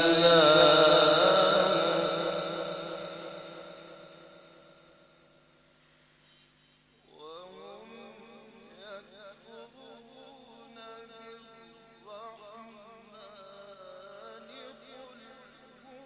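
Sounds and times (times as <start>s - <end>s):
man chanting recitation: 0.0s - 4.3s, 7.1s - 16.0s.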